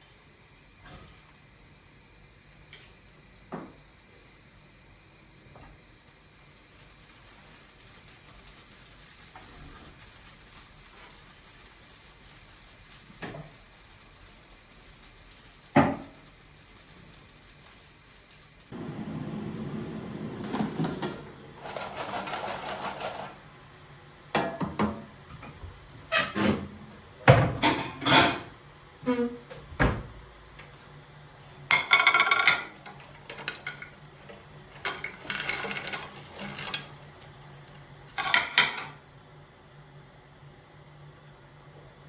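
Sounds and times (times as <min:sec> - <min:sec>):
dishes and cutlery clinking: 0:27.5 - 0:28.5, 0:31.7 - 0:34.0, 0:34.7 - 0:37.0.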